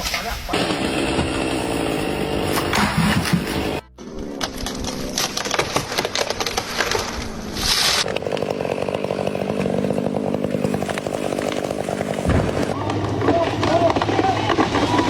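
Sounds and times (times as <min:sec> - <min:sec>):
chainsaw cutting wood: 0:00.5 - 0:03.8, 0:04.4 - 0:15.0
wood cracking and snapping: 0:04.3 - 0:15.0.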